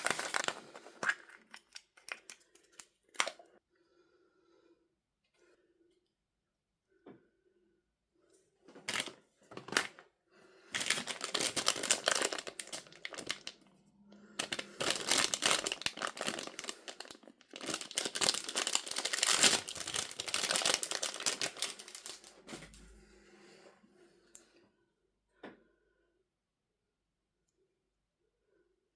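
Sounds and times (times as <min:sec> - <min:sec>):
packaging crinkling: 0:00.0 - 0:03.5, 0:08.9 - 0:10.0, 0:10.7 - 0:13.6, 0:14.4 - 0:22.8.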